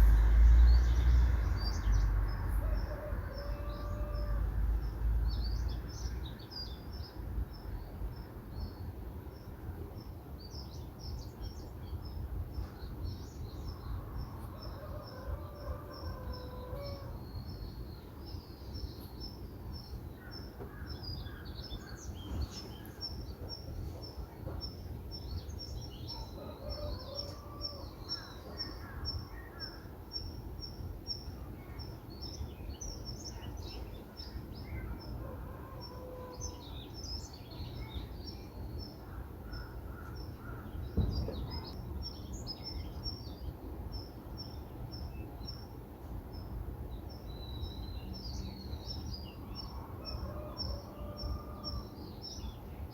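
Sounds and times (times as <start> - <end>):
low background rumble: 0.0 - 6.0
brief thump: 41.0 - 41.7.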